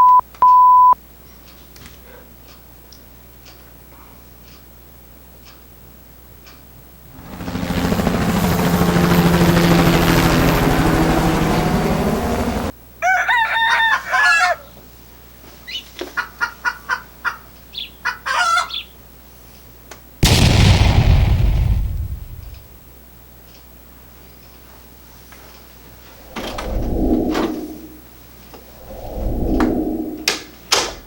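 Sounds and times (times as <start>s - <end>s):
sudden loud burst: 20.2s - 22.7s.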